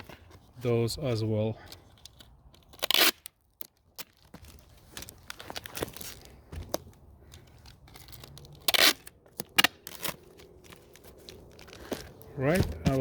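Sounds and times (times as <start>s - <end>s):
packing material crinkling: 2.6s - 6.4s
loud tearing: 2.8s - 3.3s, 8.5s - 10.2s.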